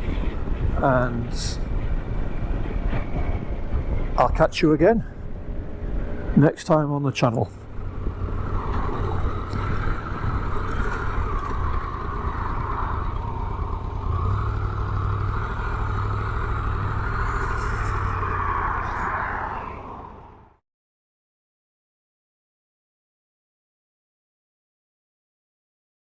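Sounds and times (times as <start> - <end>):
road and wind noise: 0.0 - 20.6
motorcycle engine running: 7.6 - 18.3.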